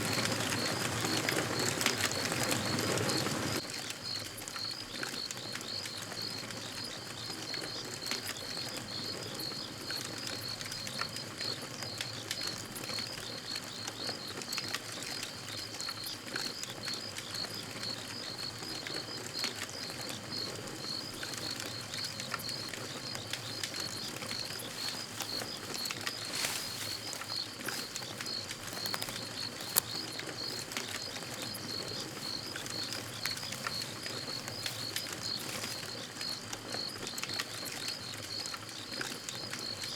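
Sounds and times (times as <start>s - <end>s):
campfire crackling and popping: 0.0s - 39.9s
steady high chirping: 17.8s - 37.0s.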